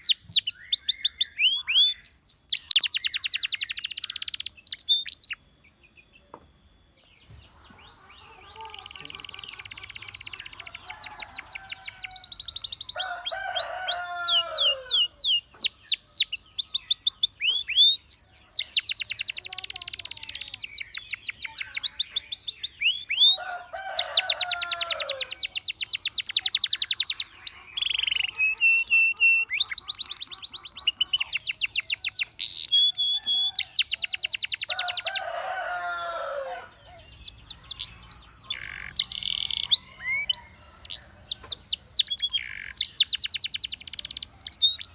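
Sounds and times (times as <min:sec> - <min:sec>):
canary trilling song: 0:00.0 - 0:44.9
lower falling bird phrase: 0:07.4 - 0:15.3.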